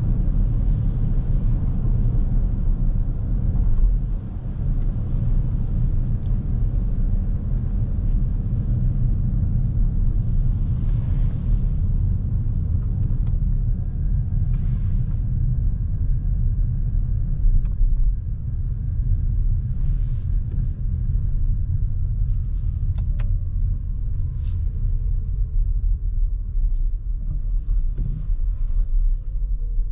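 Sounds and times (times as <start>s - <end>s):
road and tyre rumble: 0.0s - 29.9s.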